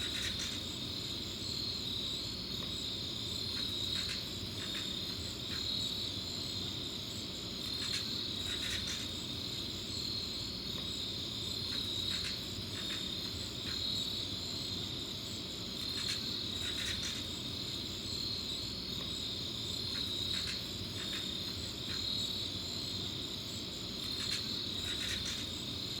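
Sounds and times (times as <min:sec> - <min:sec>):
insects trilling: 0:00.0 - 0:26.0
short insect calls: 0:00.0 - 0:26.0.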